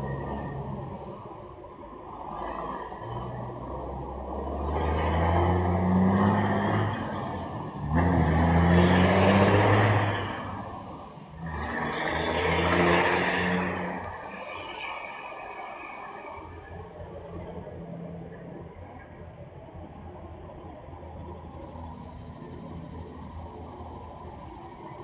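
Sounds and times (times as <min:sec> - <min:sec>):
truck engine revving: 0:02.1 - 0:15.7.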